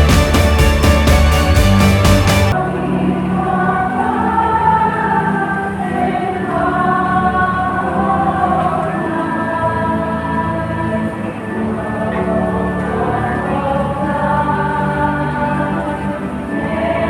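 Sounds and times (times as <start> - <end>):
beat-driven music track: 0.0 - 2.6
choir singing sustained chords: 0.0 - 17.0.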